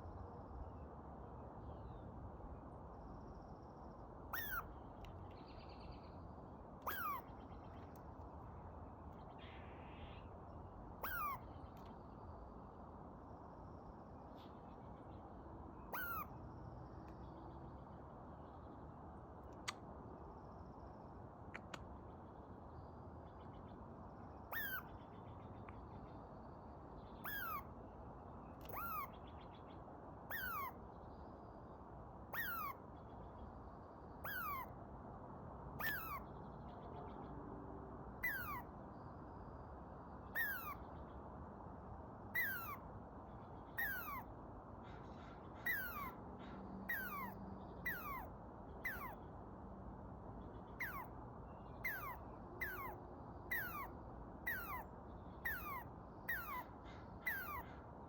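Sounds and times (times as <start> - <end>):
squirrel calling: 4.3 - 4.8, 6.8 - 8.0, 11.0 - 11.8, 15.8 - 16.4, 24.4 - 25.1, 27.2 - 27.8, 28.6 - 29.4, 30.3 - 30.8, 32.3 - 32.9, 34.2 - 34.8, 35.8 - 36.3, 38.2 - 38.7, 40.3 - 40.9, 42.3 - 42.9, 43.7 - 44.3, 44.9 - 46.2, 46.8 - 49.3, 50.7 - 57.8.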